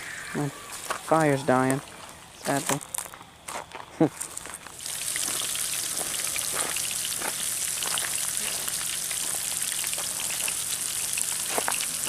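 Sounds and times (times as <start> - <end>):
fish frying in grease: 4.7 - 12.0.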